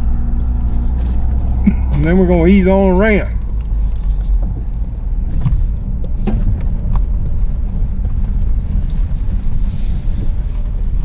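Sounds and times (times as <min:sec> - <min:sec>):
car engine and road rumble: 0:00.0 - 0:11.0
car knocking over bumps: 0:03.3 - 0:08.8.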